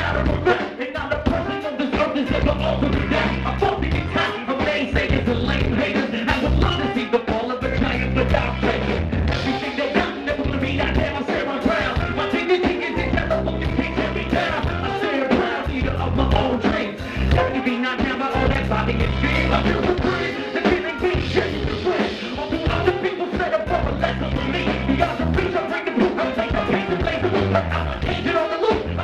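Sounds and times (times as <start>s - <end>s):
bass line: 0.0s - 29.0s
guitar: 0.0s - 29.0s
steady drum beat: 0.0s - 29.0s.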